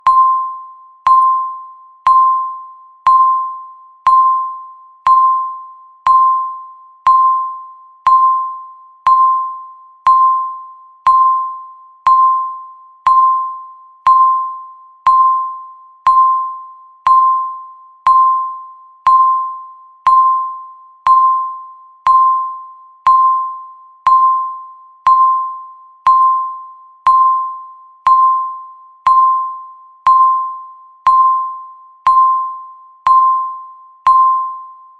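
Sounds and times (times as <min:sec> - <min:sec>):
timer ticking: 0:10.1 - 0:11.5, 0:12.1 - 0:16.5, 0:19.1 - 0:19.5, 0:26.1 - 0:29.5, 0:30.1 - 0:34.5.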